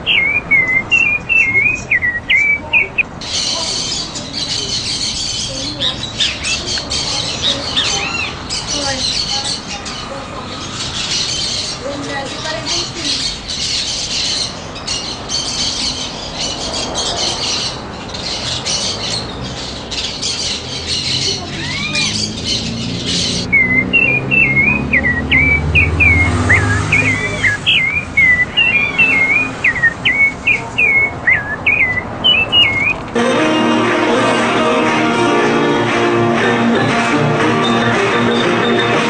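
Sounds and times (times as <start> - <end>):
bird singing whistled song: 0.0 - 3.6, 22.3 - 33.0
small birds chirping: 0.0 - 33.2.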